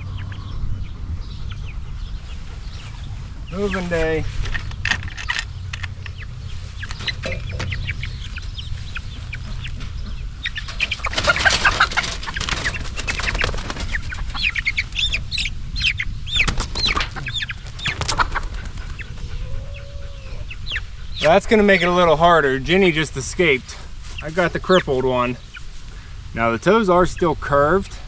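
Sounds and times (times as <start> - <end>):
chicks peeping: 0.0 - 28.0
bird wings flapping: 10.7 - 14.5, 16.4 - 19.3.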